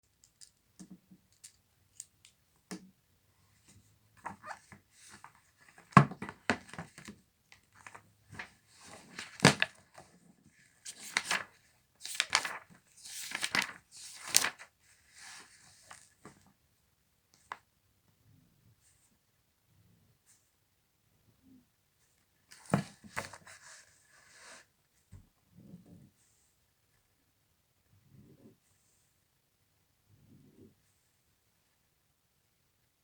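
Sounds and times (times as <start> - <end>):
paper rustling and crinkling: 4.2 - 10.1, 10.7 - 16.4, 22.5 - 23.8.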